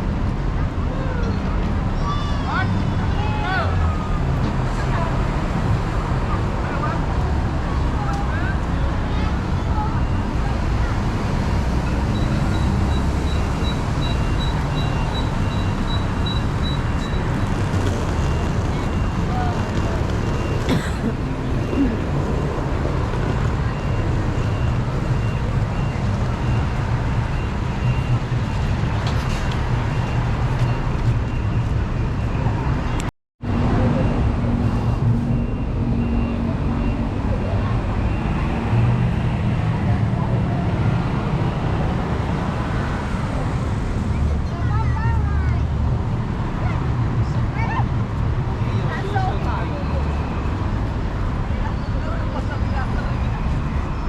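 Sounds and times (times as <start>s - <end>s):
city traffic rumble: 0.0s - 54.0s.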